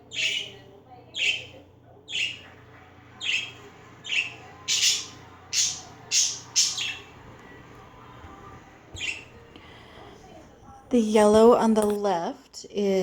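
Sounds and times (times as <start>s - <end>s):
pet birds harsh chirps: 0.0s - 7.2s, 9.0s - 9.3s.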